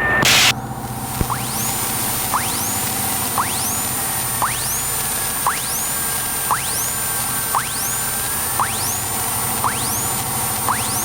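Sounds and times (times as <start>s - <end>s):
intercom hiss: 0.0s - 0.5s
rising electronic chirp: 1.2s - 11.0s.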